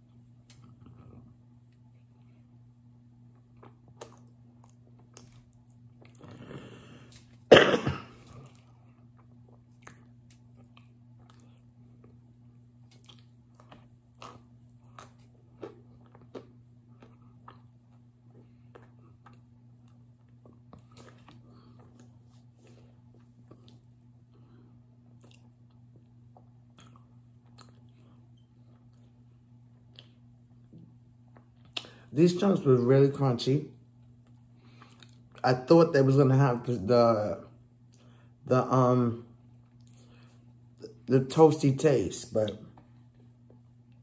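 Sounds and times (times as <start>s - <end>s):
chewing crunchy food: 3.2s - 7.5s, 8.1s - 32.1s, 34.0s - 35.4s, 39.4s - 41.0s
loud cough: 7.5s - 8.2s.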